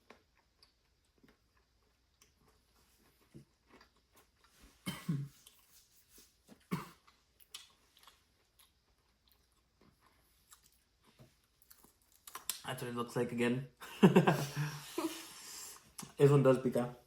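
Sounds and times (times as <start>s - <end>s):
chewing crunchy food: 0.0s - 5.8s, 6.5s - 12.6s.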